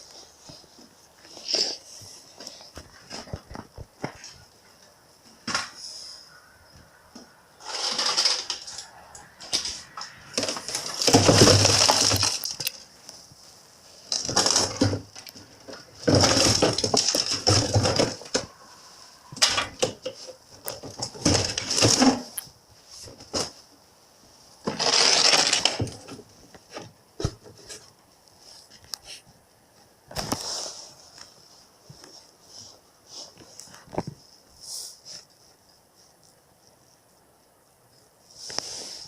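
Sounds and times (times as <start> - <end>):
broken pieces crunching and clattering: 9.4 - 12.8, 14.1 - 18.5, 24.7 - 26.1.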